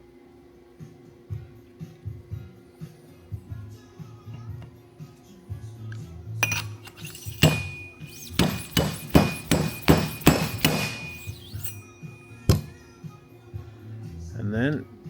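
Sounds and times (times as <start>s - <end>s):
background music: 0.0s - 15.0s
metallic knocks with ringing: 6.4s - 12.8s.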